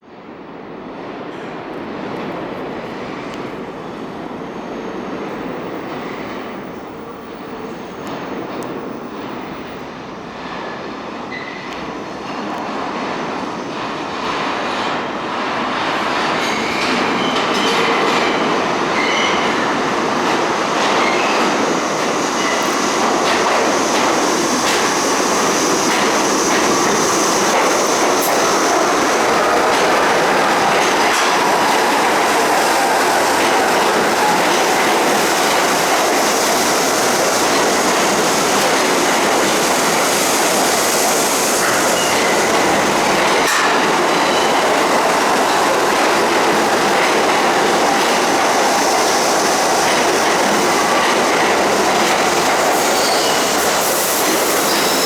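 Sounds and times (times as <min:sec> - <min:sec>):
subway train wheels clattering: 0:00.0 - 0:55.0
high wheel squeal: 0:47.5 - 0:55.0.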